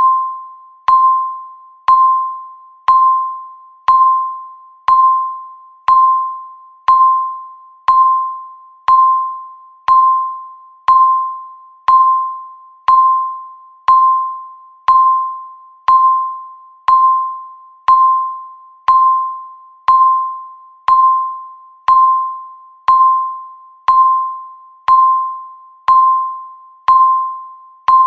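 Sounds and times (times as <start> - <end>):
countdown timer beeping: 0.0 - 28.0.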